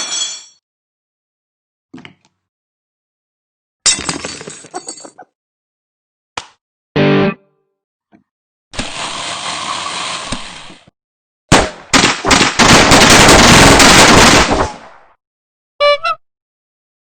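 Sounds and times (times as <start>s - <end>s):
rapid gunfire-like bursts: 11.6s - 14.9s.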